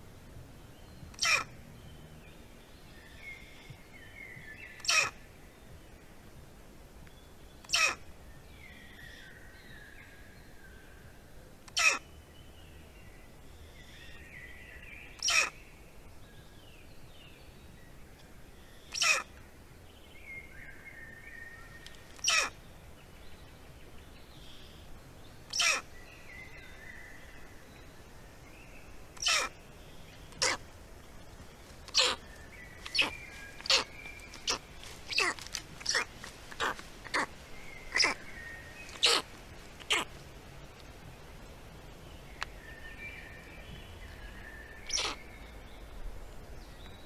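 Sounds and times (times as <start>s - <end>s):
faint songbirds singing: 0.0s - 47.0s
bird short harsh call: 37.9s - 38.2s, 38.9s - 40.1s, 44.8s - 45.2s.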